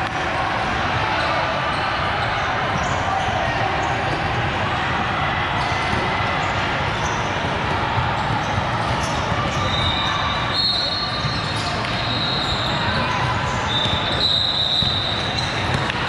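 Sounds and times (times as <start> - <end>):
crowd chatter: 0.0 - 16.0
volleyballs struck and bouncing: 11.2 - 16.0.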